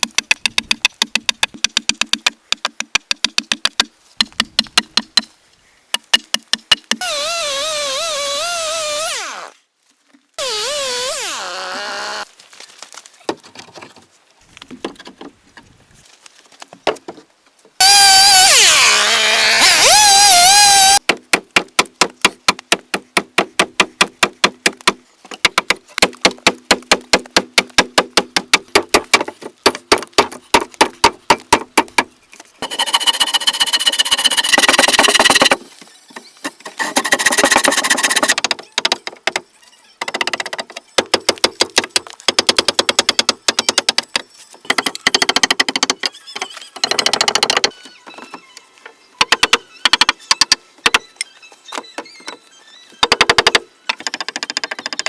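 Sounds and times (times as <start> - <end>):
rapid hammering knocks: 0.0 - 5.3, 21.0 - 32.1, 40.0 - 46.0, 46.8 - 47.7, 53.0 - 55.0.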